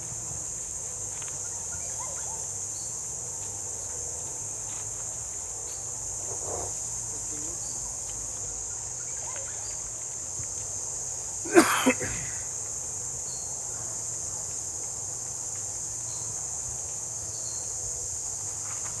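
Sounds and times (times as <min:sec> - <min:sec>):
insects shrilling: 0:00.0 - 0:19.0
breathy burst near microphone: 0:11.5 - 0:12.5.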